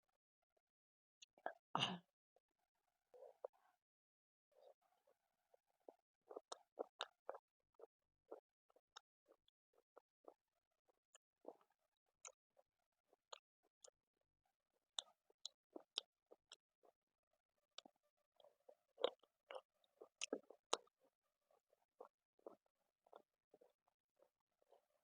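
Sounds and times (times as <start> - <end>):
person chewing with wet smacks: 5.6 - 14.0, 15.0 - 17.0, 17.8 - 24.8.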